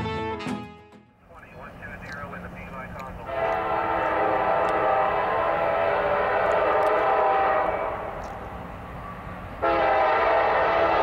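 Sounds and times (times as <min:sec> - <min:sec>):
locomotive air horn chord: 0:03.2 - 0:08.1, 0:09.6 - 0:11.0.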